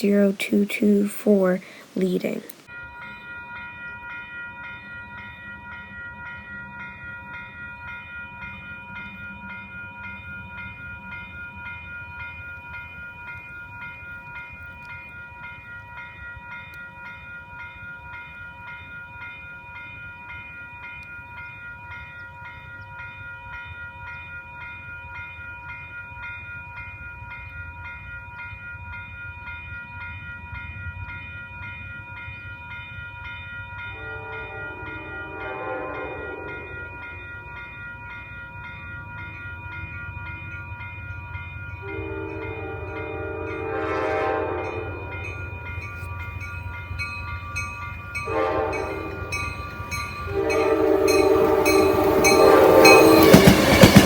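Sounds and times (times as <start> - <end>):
crossing bell ringing: 0.0 - 54.0
passenger train rumbling: 28.8 - 54.0.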